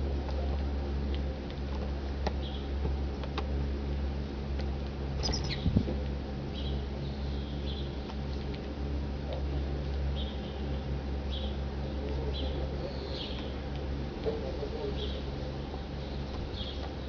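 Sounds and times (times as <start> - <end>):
steady low hum: 0.0 - 17.0
small animals chirping: 5.2 - 5.8.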